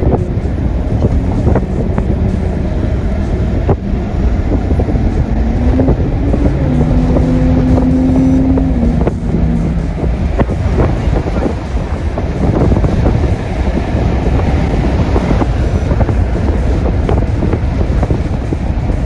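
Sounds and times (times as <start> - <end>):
low held tone: 0.0 - 13.3
helicopter cabin rumble: 0.0 - 19.0
wind buffeting microphone: 0.0 - 19.0.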